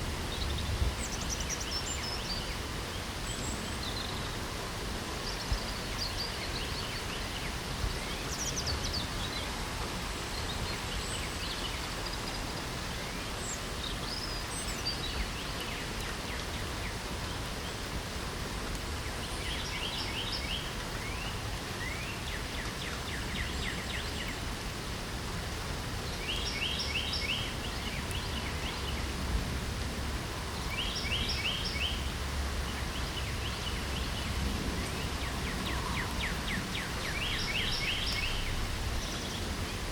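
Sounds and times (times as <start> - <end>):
light rain: 0.0 - 39.9
bird chirps: 35.2 - 39.4.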